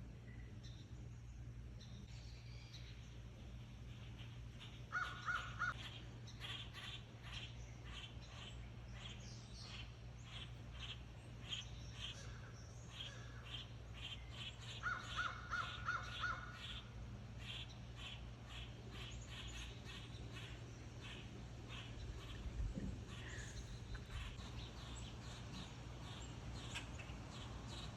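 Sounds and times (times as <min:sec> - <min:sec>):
crows cawing: 0:04.9 - 0:07.4, 0:14.7 - 0:16.8, 0:23.1 - 0:24.4.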